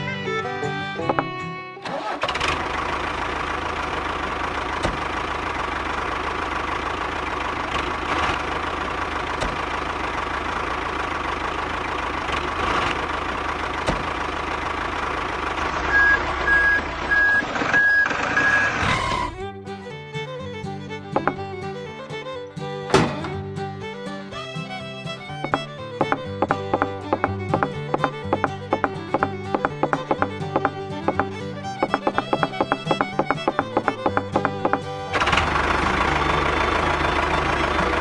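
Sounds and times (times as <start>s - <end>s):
vehicle engine running: 1.9s - 19.5s, 20.6s - 38.0s
reversing beeps: 15.9s - 18.8s.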